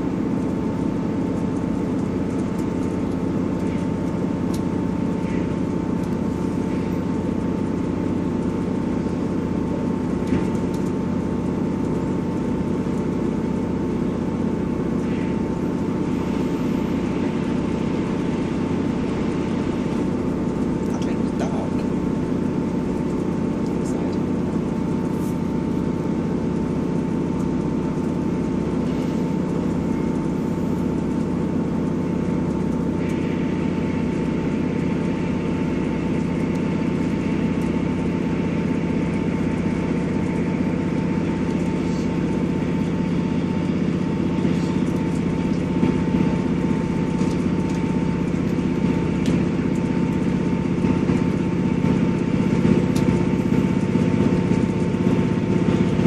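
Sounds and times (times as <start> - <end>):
constant whine: 0.0 - 56.0
diesel train drone: 0.0 - 56.0.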